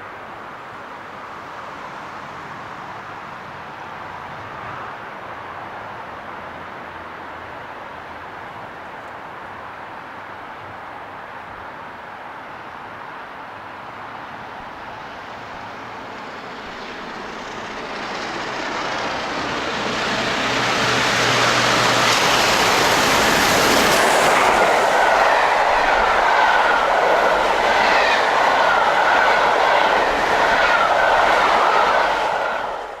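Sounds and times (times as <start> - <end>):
train passing at speed: 0.0 - 33.0
wheels clattering on rails: 15.6 - 33.0.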